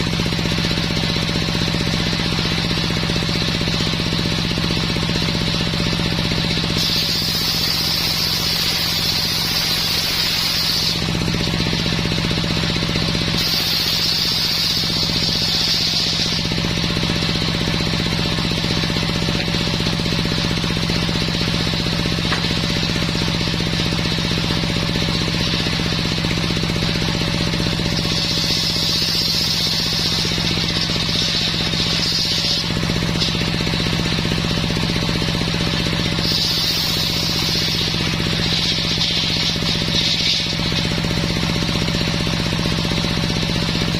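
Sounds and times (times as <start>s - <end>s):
sawmill engine hum: 0.0s - 43.9s
saw blade hissing in wood: 6.7s - 11.2s, 13.3s - 16.8s, 27.9s - 33.6s, 36.1s - 41.4s.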